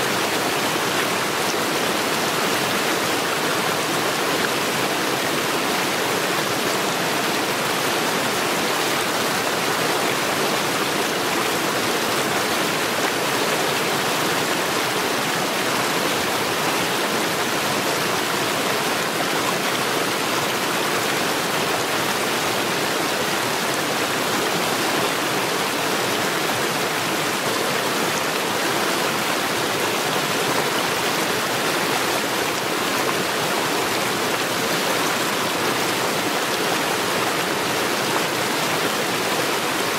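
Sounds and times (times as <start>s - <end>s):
mountain stream rushing over stones: 0.0s - 39.9s.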